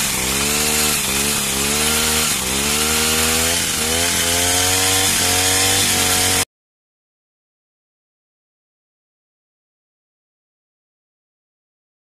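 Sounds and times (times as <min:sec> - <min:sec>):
small engine revving: 0:00.0 - 0:06.5.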